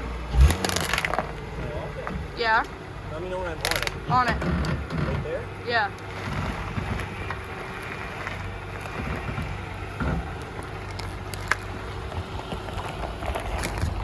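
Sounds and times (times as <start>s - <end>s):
car engine idling: 0.0s - 14.0s
wind rumble on microphone: 11.1s - 14.0s.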